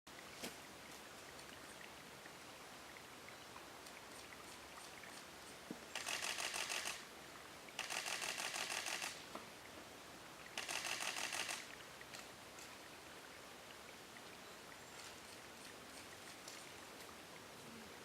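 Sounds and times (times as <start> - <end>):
faint background hiss: 0.1 - 18.0
camera shutter clicking: 6.0 - 7.0, 7.8 - 9.2, 10.6 - 11.7.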